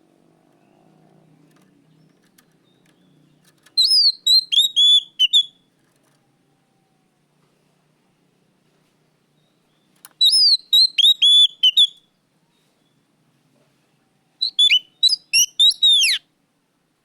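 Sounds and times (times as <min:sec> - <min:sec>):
bird singing whistled notes: 0:03.8 - 0:05.7, 0:09.4 - 0:12.2, 0:14.4 - 0:16.2.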